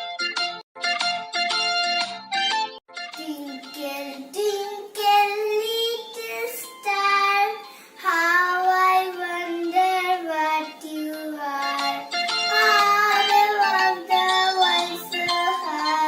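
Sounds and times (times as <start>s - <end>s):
child singing: 3.2s - 16.0s.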